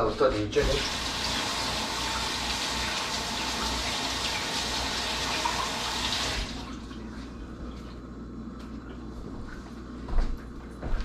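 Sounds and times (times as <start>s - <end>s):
faucet running: 0.6s - 7.1s.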